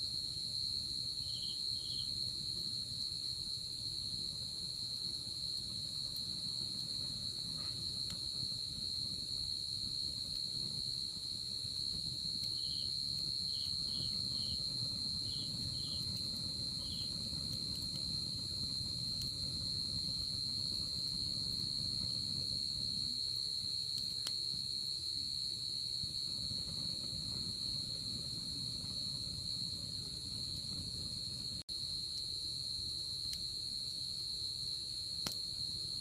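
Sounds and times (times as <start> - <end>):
cricket trill: 0.1 - 36.0
wood fire crackling: 1.2 - 25.3, 26.0 - 32.3.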